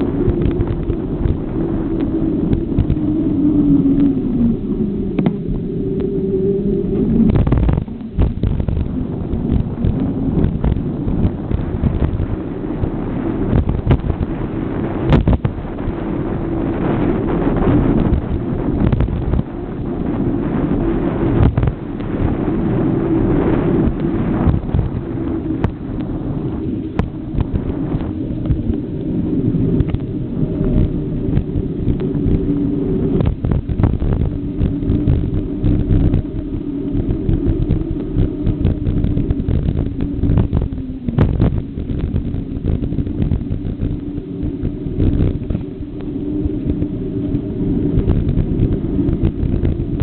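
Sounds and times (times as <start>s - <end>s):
wind buffeting microphone: 0.0s - 50.0s.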